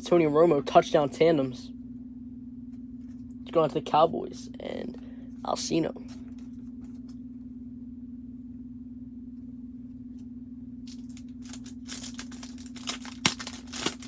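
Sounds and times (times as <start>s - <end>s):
low electrical hum: 0.0s - 14.0s
foil pack crinkling and tearing: 10.8s - 14.0s.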